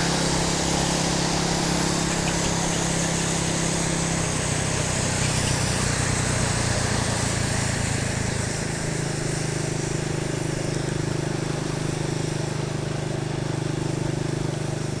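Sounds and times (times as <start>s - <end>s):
wind and road noise: 0.0s - 14.5s
motorcycle engine running: 0.0s - 15.0s.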